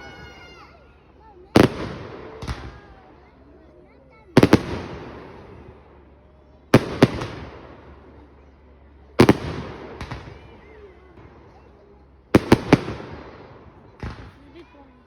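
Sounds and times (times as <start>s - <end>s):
rolling echo: 0.0s - 15.0s.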